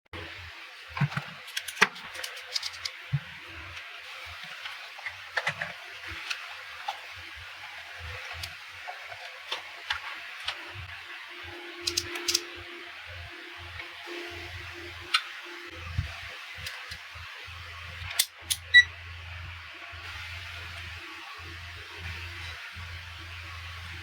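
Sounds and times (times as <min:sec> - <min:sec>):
plastic parts clicking and tapping: 0:01.0 - 0:03.3, 0:04.6 - 0:07.0, 0:11.8 - 0:12.6, 0:16.6 - 0:17.1, 0:18.0 - 0:18.9.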